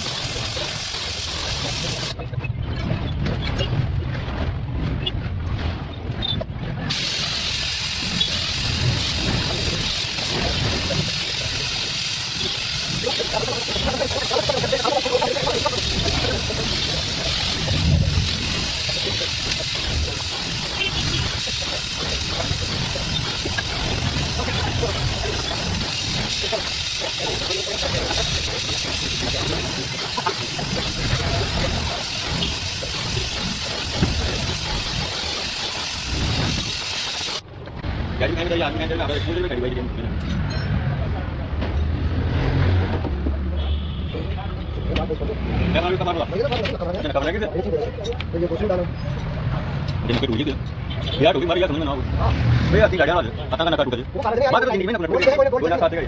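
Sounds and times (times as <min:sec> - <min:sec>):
gas welding torch hissing: 0:00.0 - 0:02.2, 0:06.9 - 0:37.5.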